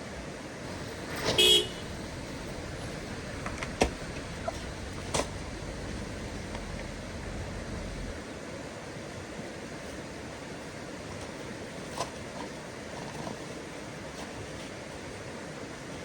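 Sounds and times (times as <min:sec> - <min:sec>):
outdoor background noise: 0:00.0 - 0:16.0
horn-like beep: 0:01.1 - 0:03.2.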